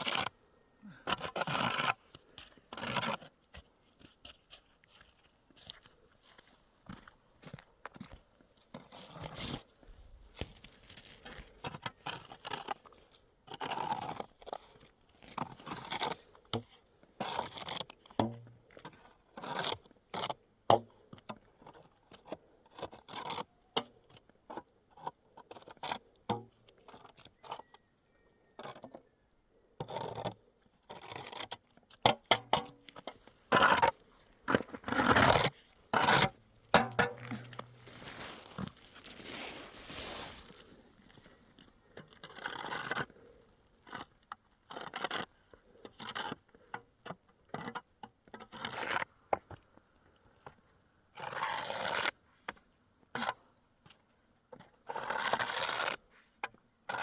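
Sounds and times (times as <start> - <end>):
scraping and rustling: 33.1 - 41.4.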